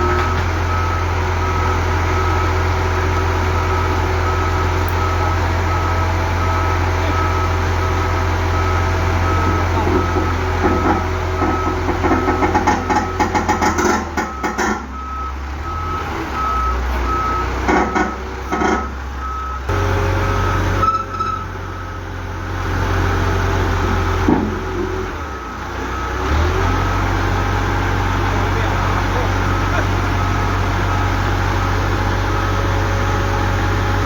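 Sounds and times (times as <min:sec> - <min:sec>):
reversing alarm beeping: 0:00.0 - 0:34.0
truck engine running: 0:00.0 - 0:34.0
metal clanking and knocking: 0:09.4 - 0:15.0, 0:17.6 - 0:19.0, 0:23.9 - 0:25.0.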